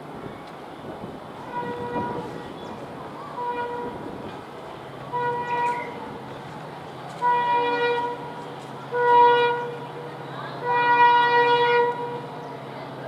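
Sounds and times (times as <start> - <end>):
train rumbling past: 0.0 - 13.0
locomotive horn blasts: 1.4 - 2.4, 3.4 - 4.0, 5.1 - 6.1, 7.2 - 9.9, 10.6 - 12.3.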